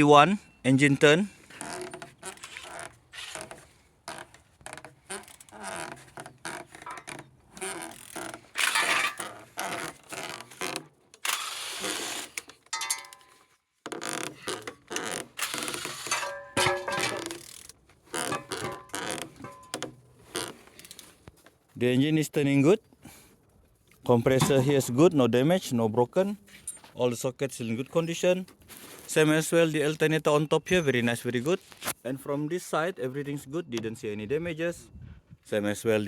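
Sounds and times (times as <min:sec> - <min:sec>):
engine mechanical creaking: 0:00.9 - 0:21.2.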